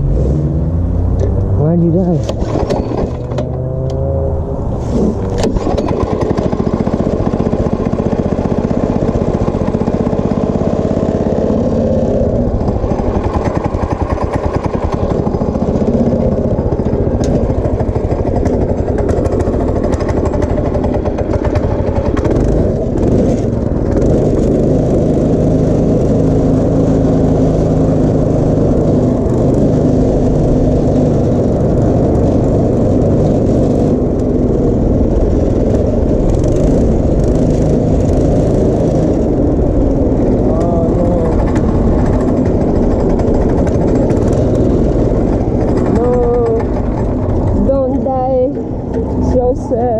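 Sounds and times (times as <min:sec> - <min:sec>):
go-kart engine running: 0:00.0 - 0:49.9.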